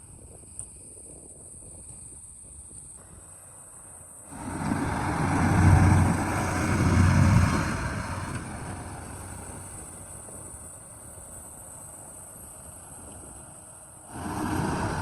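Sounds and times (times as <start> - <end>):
heavy diesel engine running: 4.3 - 13.1, 14.0 - 15.0.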